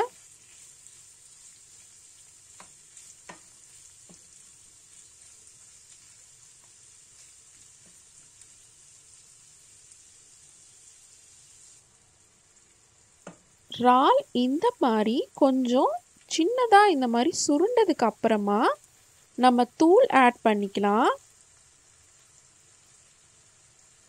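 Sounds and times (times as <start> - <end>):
prawns sizzling in oil: 0.0 - 24.0
spatula tapping and scraping pan: 0.1 - 8.5.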